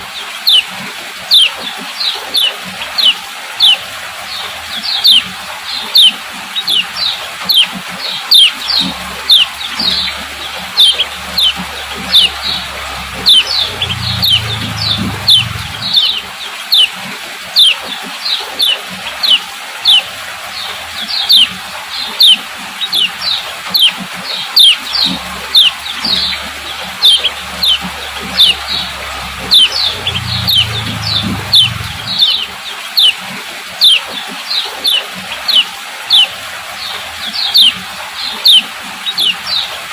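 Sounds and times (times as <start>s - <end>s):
bird chirping sharply: 8.3s - 16.9s, 22.2s - 24.0s, 24.6s - 33.2s
faint low rumble: 9.2s - 16.2s, 25.4s - 32.5s.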